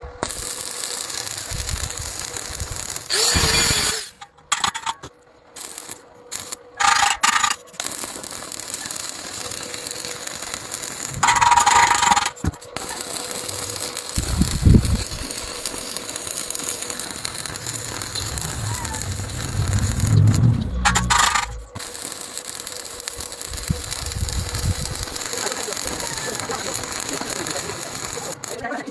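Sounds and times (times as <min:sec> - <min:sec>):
arc welding crackling hiss: 0:00.0 - 0:28.9
low thump: 0:18.1 - 0:21.7.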